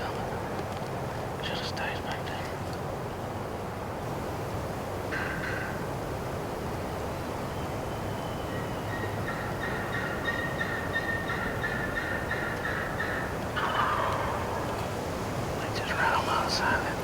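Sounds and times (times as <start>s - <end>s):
distant turkeys gobbling: 5.0s - 17.0s.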